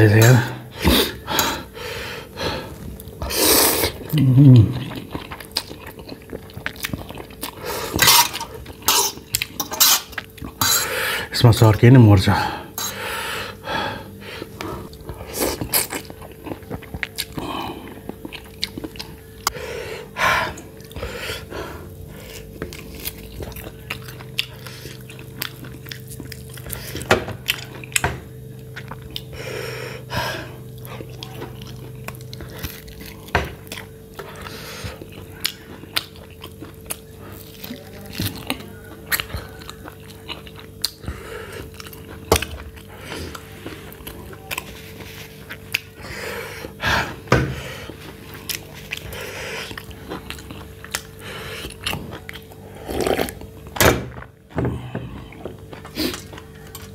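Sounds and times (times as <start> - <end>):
person chewing and biting: 2.3 - 10.9, 13.6 - 56.9
wet smacks and crunchy clicks: 38.2 - 41.0.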